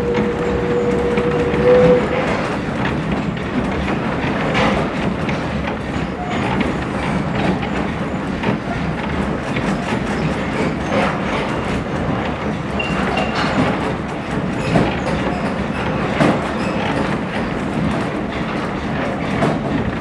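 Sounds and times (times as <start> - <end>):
held tone: 0.0 - 2.2
train wheels rumbling on rails: 0.0 - 20.0.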